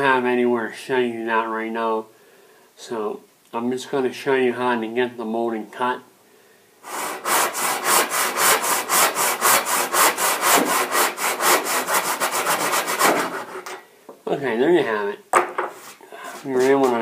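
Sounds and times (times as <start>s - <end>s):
hand saw cutting plaster: 6.9s - 13.8s.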